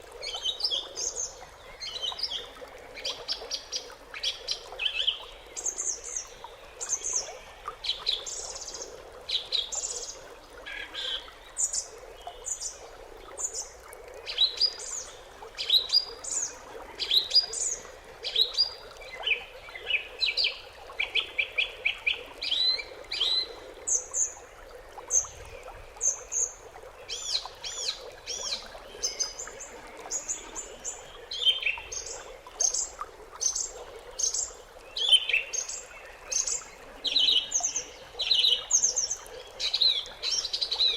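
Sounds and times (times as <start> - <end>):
songbirds singing and chirping: 25.0 - 40.9.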